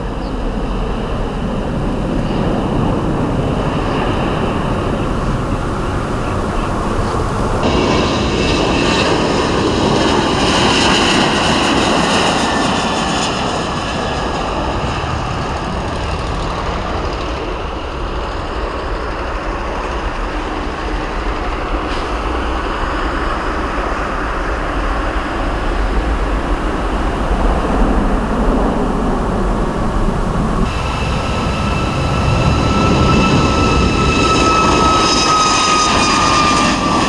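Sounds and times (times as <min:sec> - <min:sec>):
high jet engine whine: 0:00.0 - 0:37.0
jet airliner engine roar: 0:00.0 - 0:37.0.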